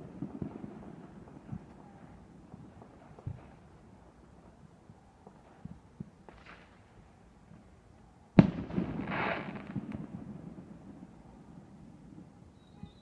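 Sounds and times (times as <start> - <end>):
crackling hiss: 0.0 - 13.0
firework bang: 8.4 - 11.1.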